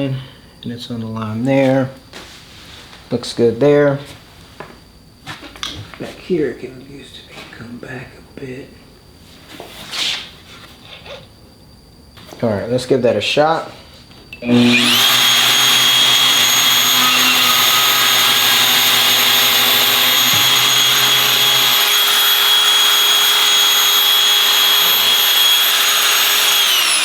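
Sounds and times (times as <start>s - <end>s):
power tool motor whining: 14.4s - 27.0s.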